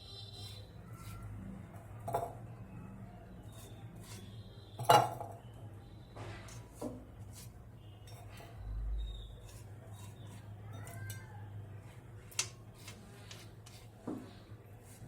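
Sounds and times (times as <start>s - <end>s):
utensils clinking against cookware: 4.8s - 5.4s, 9.4s - 11.4s.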